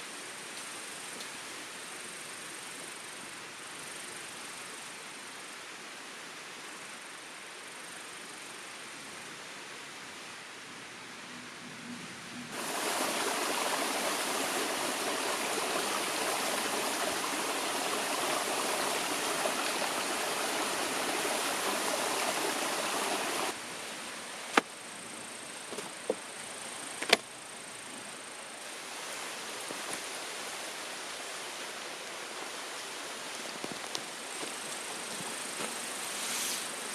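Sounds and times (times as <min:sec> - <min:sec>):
outdoor ambience: 0:00.0 - 0:36.9
flowing water rushing: 0:12.5 - 0:24.6, 0:28.6 - 0:36.9.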